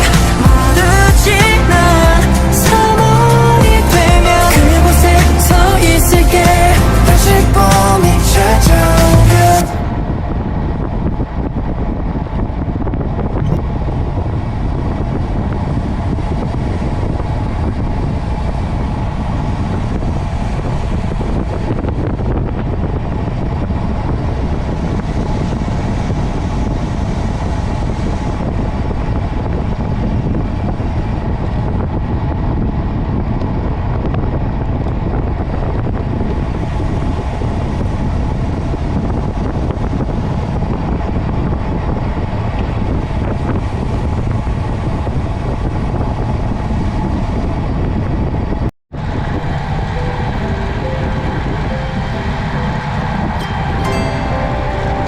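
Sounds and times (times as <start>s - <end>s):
road noise from vehicle: 0.0s - 55.0s
wind rush on microphone: 0.0s - 55.0s
faint engine note: 49.0s - 55.0s.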